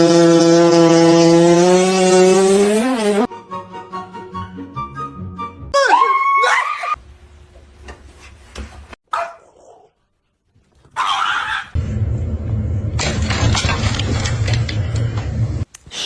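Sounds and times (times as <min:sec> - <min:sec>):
pet animal crying: 0:11.0 - 0:11.8.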